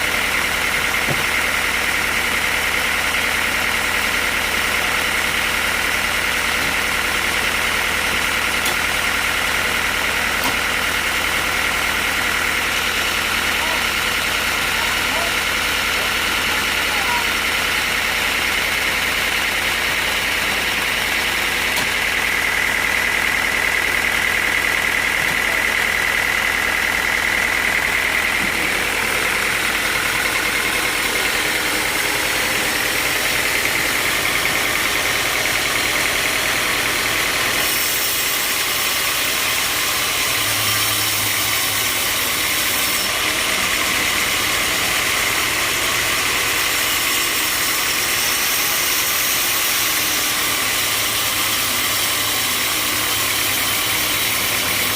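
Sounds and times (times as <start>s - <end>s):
sawmill machinery running: 0.0s - 54.9s.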